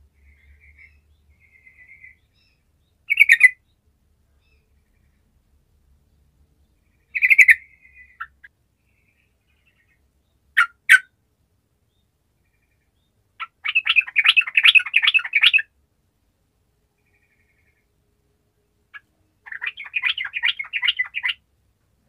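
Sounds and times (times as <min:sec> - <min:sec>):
bird singing: 0:00.0 - 0:03.8, 0:04.4 - 0:05.4, 0:06.0 - 0:11.1, 0:11.8 - 0:15.7, 0:16.9 - 0:18.0, 0:18.9 - 0:21.4.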